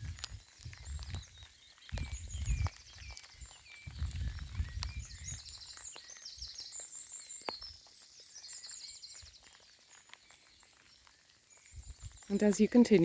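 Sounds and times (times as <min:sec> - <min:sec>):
wind rumble on microphone: 0:00.0 - 0:06.6, 0:11.7 - 0:13.0
birdsong with high trills: 0:00.0 - 0:13.0
light rain drops ticking: 0:00.0 - 0:13.0.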